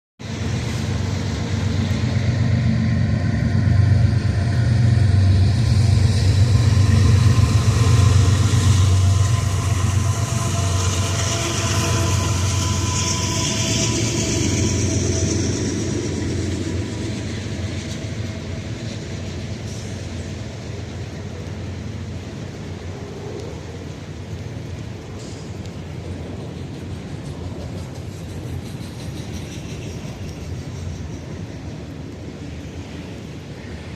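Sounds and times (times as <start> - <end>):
high hiss: 0.2 - 21.1
diesel locomotive rumble: 0.2 - 33.9.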